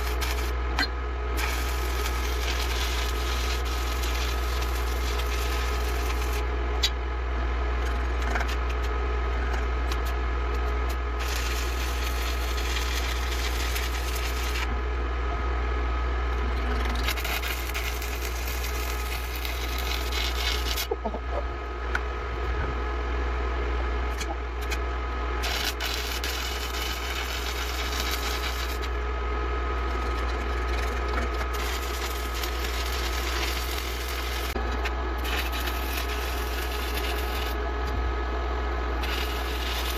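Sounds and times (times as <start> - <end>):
welding arc crackling hiss: 0.0 - 0.6, 1.3 - 6.9, 9.8 - 14.7, 16.8 - 20.9, 25.4 - 29.0, 29.8 - 37.6, 39.0 - 39.9
steady low hum: 0.0 - 39.9.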